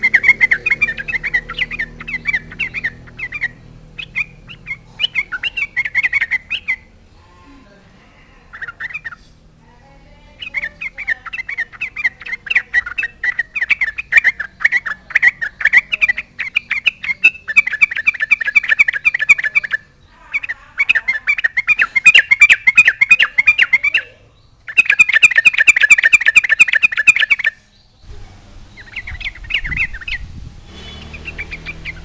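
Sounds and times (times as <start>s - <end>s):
bulbul singing bubbly chatter: 0.0s - 7.1s, 8.5s - 9.2s, 10.3s - 27.6s, 28.8s - 30.3s.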